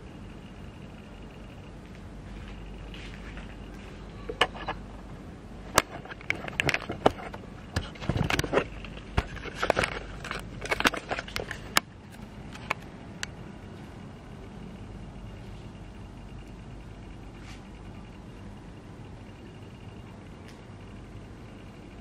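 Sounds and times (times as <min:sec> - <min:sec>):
steady low hum: 0:00.0 - 0:22.0
sharp clicks and crackles: 0:05.7 - 0:13.4.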